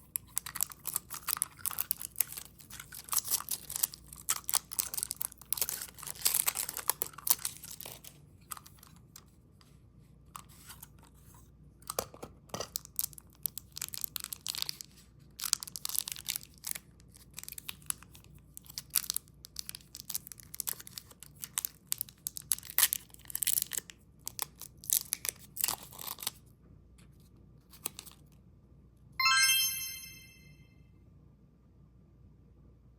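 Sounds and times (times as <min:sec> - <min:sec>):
plastic wrappers crinkling: 0:00.3 - 0:08.9, 0:12.9 - 0:18.0
short bright chime: 0:29.2 - 0:30.6.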